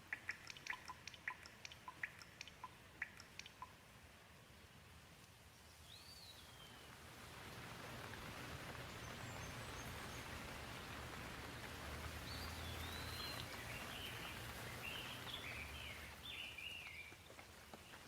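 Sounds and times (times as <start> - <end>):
bird chirping: 0.0 - 3.8, 5.7 - 6.9, 12.3 - 18.0
gentle rain hiss: 0.0 - 18.0.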